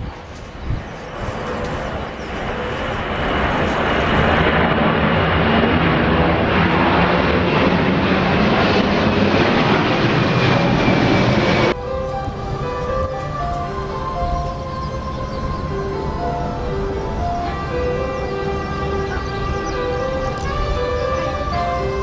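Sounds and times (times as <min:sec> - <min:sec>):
jet engines roaring: 0:00.0 - 0:22.0
music: 0:11.7 - 0:22.0.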